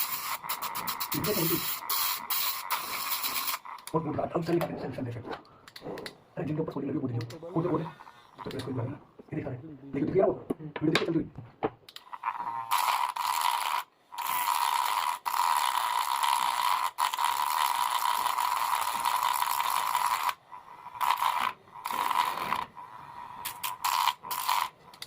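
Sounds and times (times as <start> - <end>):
small motor buzzing: 0.0 - 3.6.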